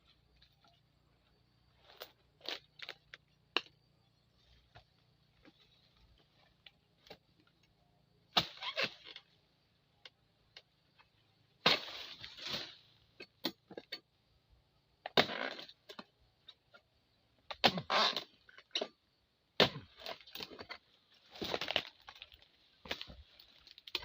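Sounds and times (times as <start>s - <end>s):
crackling rustle of fronds: 4.3s - 7.7s, 11.0s - 13.0s, 19.9s - 24.0s
tool chopping palm fronds: 8.3s - 9.2s, 11.6s - 13.8s, 15.1s - 16.1s, 17.5s - 18.9s, 19.6s - 22.2s.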